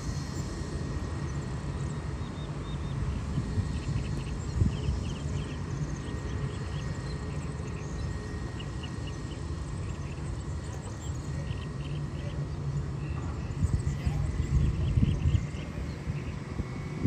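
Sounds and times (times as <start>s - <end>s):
steady low rumble: 0.0s - 17.0s
small birds chirping: 1.2s - 17.0s.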